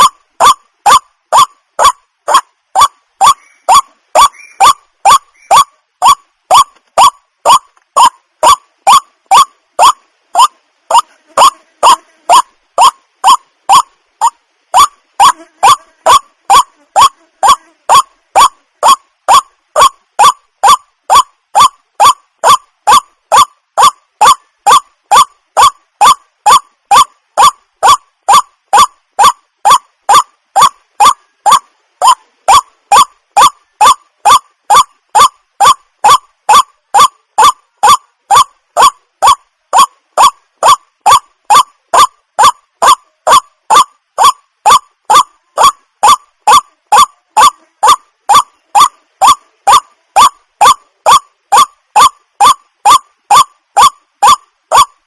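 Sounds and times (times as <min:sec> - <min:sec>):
waterhen calling: 0:00.0 - 0:29.8.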